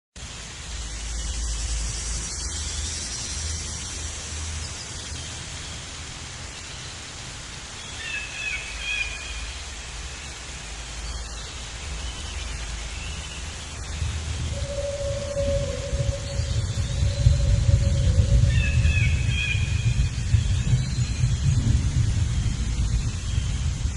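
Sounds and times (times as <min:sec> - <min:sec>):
outdoor hiss: 0:00.2 - 0:23.9
low rumble: 0:13.4 - 0:23.9.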